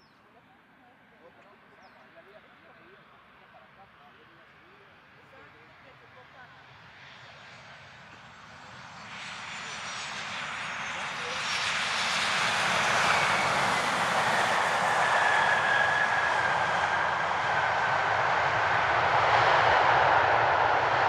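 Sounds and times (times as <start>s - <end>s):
jet engines roaring: 6.5s - 21.0s.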